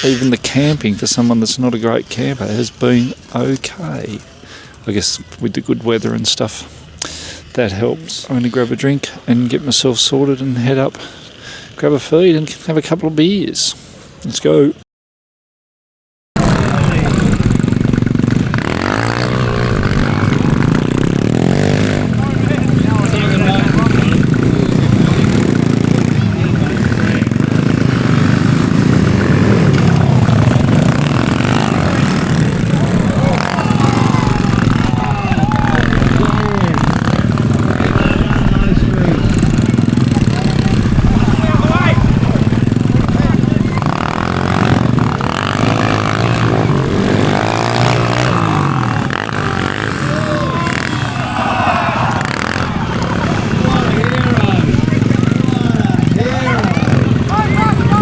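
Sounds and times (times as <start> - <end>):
motorcycle engine running: 16.4 - 58.0.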